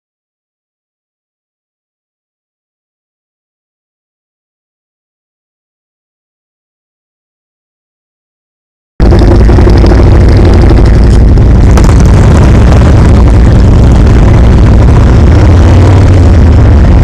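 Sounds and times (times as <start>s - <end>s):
motorcycle engine rumble: 9.0s - 17.0s.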